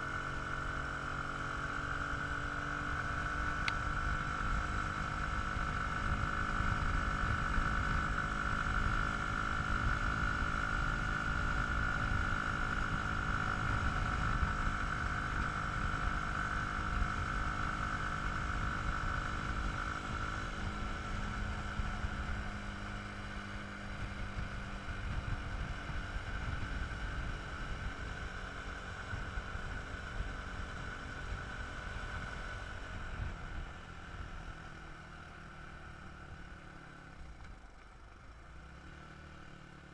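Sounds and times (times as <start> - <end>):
wind rumble on microphone: 23.9 - 28.0.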